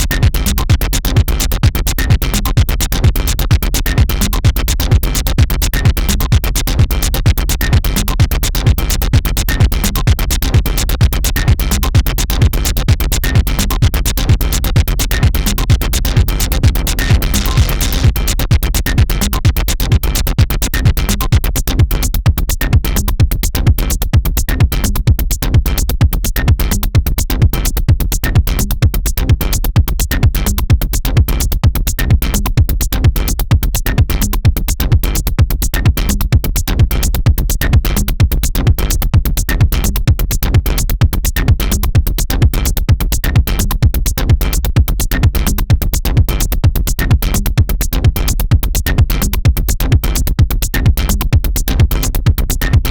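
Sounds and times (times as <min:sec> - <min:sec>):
electronic dance music: 0:00.0 - 0:21.4.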